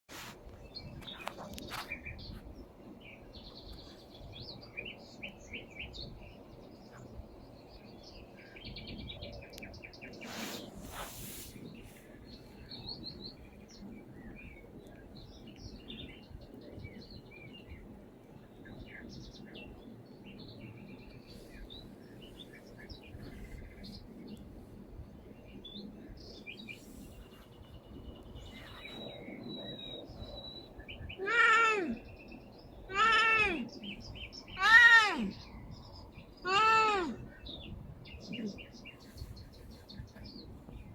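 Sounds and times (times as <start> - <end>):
small birds chirping and trilling: 0.2 - 40.9
cat meowing: 32.9 - 33.7, 34.6 - 35.3.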